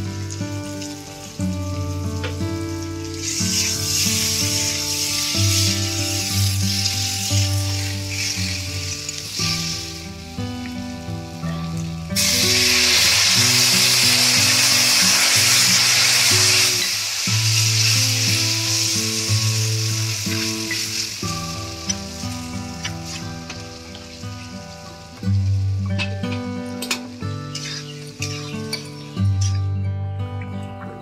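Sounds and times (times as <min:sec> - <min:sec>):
food sizzling in a wok: 0:00.0 - 0:29.2
background music: 0:00.0 - 0:31.0
water poured into hot wok: 0:12.2 - 0:25.0.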